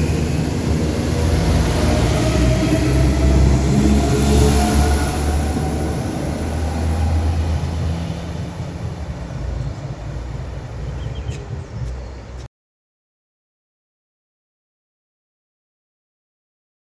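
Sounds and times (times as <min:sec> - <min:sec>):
train engine rumble: 0:00.0 - 0:12.5.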